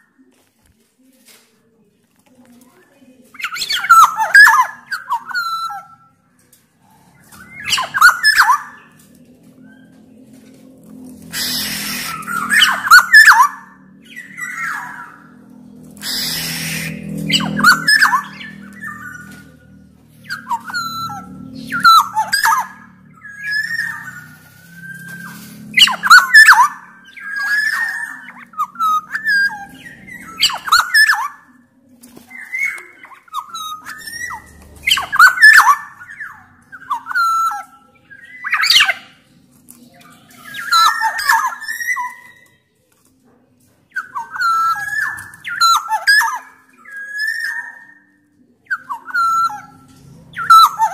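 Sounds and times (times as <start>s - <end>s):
bird whistled song: 3.4s - 6.2s, 7.2s - 10.0s, 11.2s - 31.6s, 32.3s - 39.2s, 40.0s - 42.7s, 43.9s - 50.9s
harsh rasping bird call: 11.2s - 15.4s, 16.0s - 31.4s.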